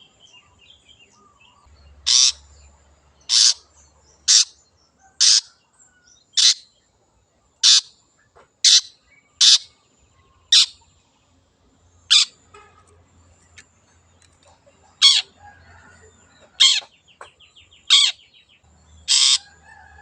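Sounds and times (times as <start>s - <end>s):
shrike harsh calls: 2.0s - 2.5s, 3.3s - 3.6s, 19.0s - 19.5s.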